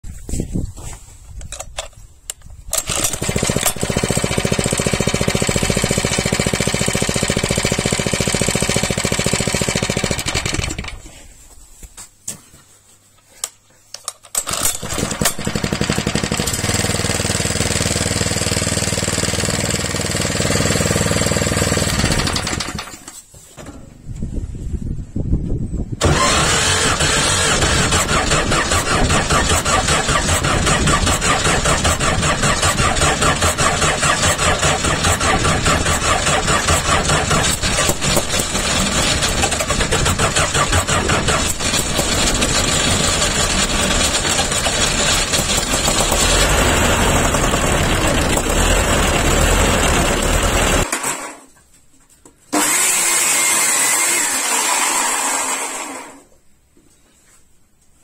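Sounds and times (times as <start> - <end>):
thinner-sounding engine running: 2.8 - 11.0, 14.5 - 23.0, 26.0 - 50.9
engine running loud: 26.0 - 50.8.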